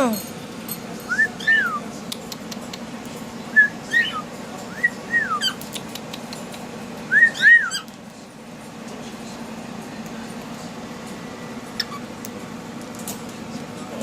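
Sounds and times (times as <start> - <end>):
steady low hum: 0.0 - 14.0
cockatiel whistling: 1.1 - 1.8, 3.5 - 5.6, 7.1 - 7.9, 11.8 - 12.1.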